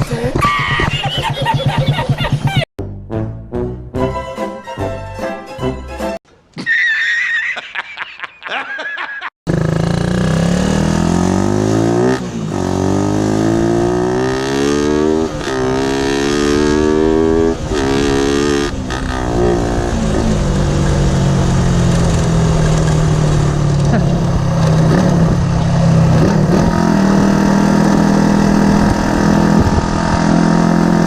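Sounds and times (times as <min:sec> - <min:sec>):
motorcycle engine accelerating: 0:09.5 - 0:31.0.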